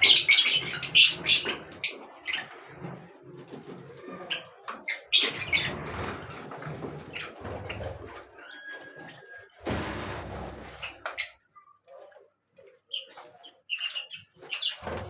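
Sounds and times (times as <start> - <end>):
birds chirping: 0.0 - 2.6.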